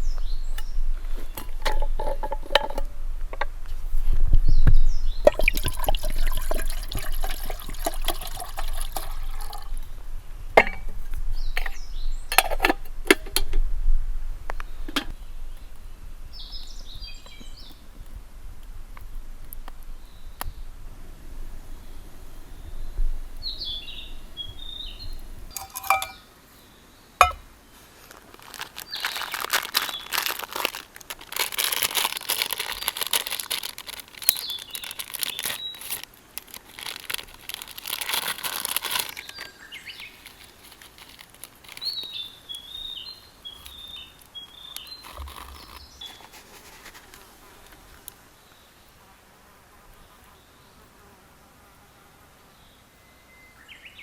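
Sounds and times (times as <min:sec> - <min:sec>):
songbird singing: 0:00.0 - 0:13.6, 0:14.4 - 0:49.1, 0:52.1 - 0:54.0
crackling and rustling: 0:00.0 - 0:13.7, 0:27.2 - 0:48.3.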